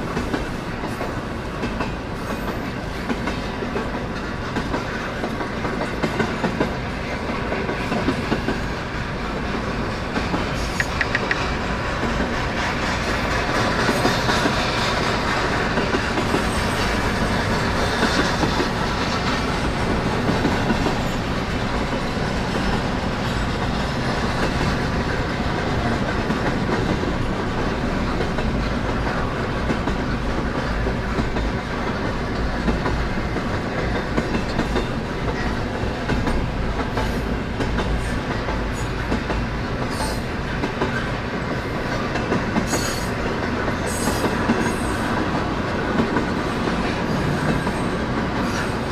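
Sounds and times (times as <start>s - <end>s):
train wheels on rails: 0.0s - 48.9s
sharp clicks: 10.8s - 11.5s.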